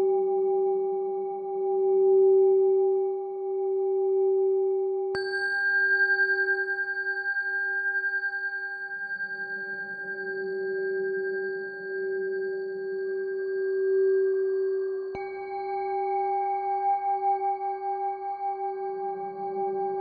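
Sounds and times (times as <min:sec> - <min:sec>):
singing bowls humming: 0:05.1 - 0:20.0.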